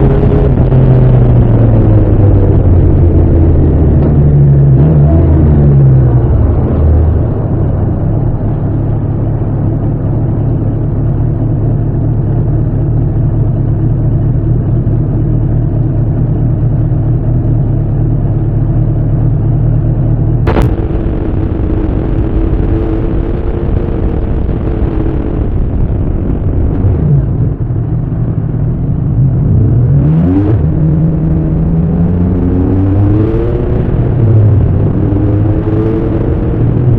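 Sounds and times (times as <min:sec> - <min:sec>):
motorcycle engine running: 0:06.3 - 0:29.9.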